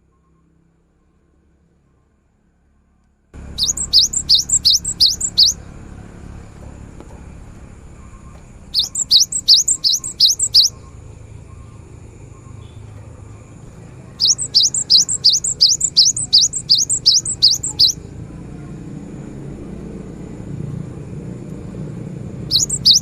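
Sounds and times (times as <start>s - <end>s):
bird singing whistled notes: 3.4s - 5.7s, 7.8s - 12.9s, 14.0s - 18.1s, 22.5s - 23.0s.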